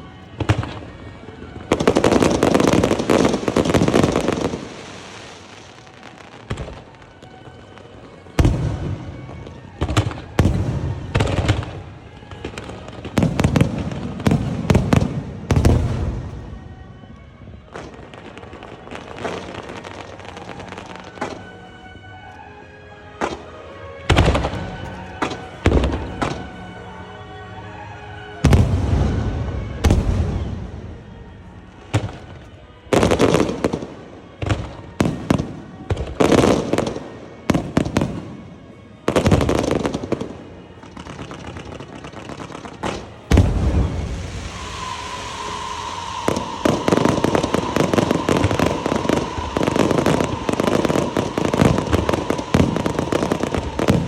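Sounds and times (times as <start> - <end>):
firework crackling barrage: 0.0 - 21.8, 23.2 - 26.8, 28.3 - 54.0
firework booms echoing: 12.5 - 16.5, 28.4 - 30.9, 42.8 - 54.0
high whistle: 43.2 - 54.0.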